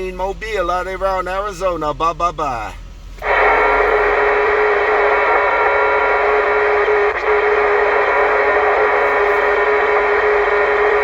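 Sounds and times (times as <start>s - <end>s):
radio hum-like tone: 3.2s - 11.0s
radio static: 3.2s - 11.0s.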